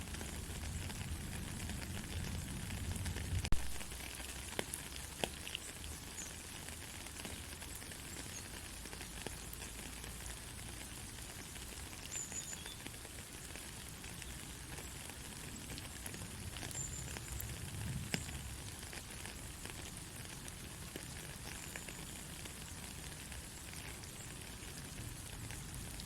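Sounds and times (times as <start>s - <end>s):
light raindrop ticks: 0.0s - 26.0s
soft rain hiss: 0.0s - 26.0s.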